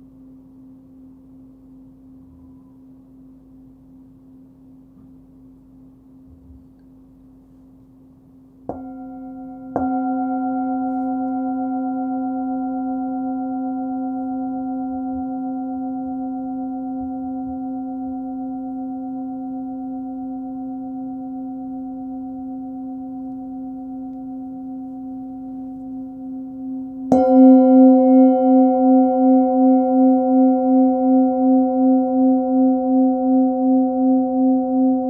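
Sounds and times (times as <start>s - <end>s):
singing bowl ringing: 8.7s - 35.0s.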